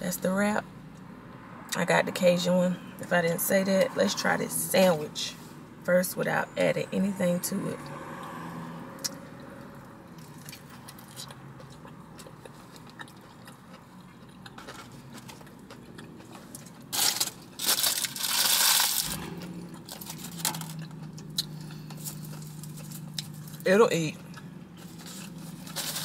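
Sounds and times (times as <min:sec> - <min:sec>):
biting and chewing sandwich: 0:10.1 - 0:23.6
low hum: 0:18.7 - 0:26.0.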